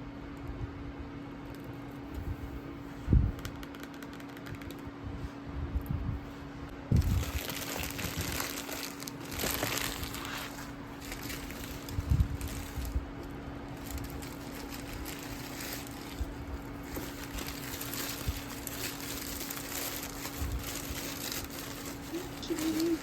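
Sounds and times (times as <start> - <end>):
steady low hum: 0.0 - 23.0
packaging crinkling: 7.0 - 23.0.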